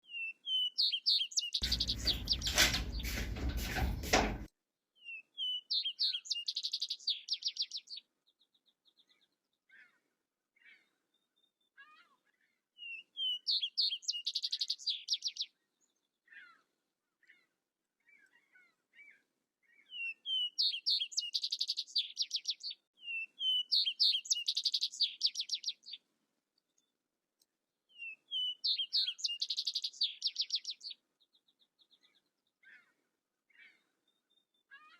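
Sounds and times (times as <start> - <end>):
songbird singing with trill: 0.0 - 3.3, 5.0 - 9.9, 12.8 - 16.5, 18.1 - 26.0, 27.9 - 34.9.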